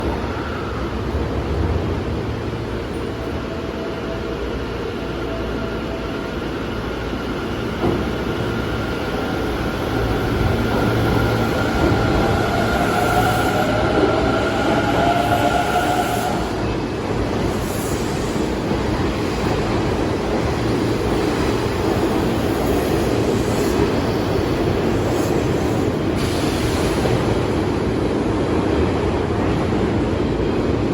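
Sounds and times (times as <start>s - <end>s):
train wheels rumbling on rail: 0.0s - 30.9s.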